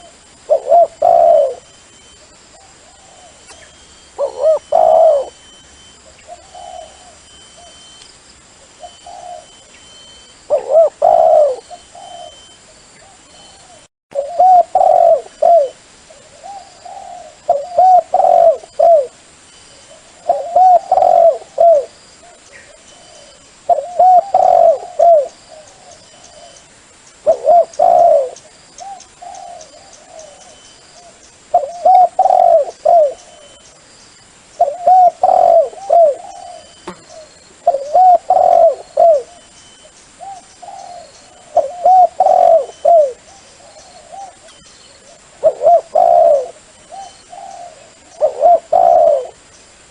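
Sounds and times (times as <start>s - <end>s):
dove cooing: 0.0s - 1.8s, 2.5s - 7.9s, 8.7s - 19.2s, 19.8s - 26.6s, 27.2s - 33.6s, 34.6s - 39.5s, 40.2s - 49.5s.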